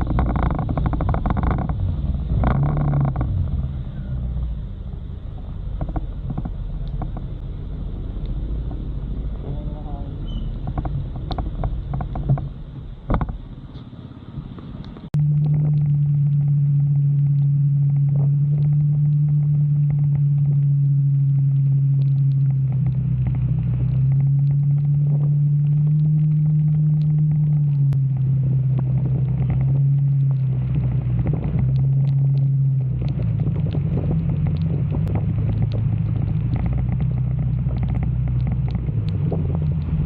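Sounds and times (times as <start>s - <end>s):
motorcycle engine: 0.0s - 40.0s
steady rushing noise: 0.0s - 40.0s.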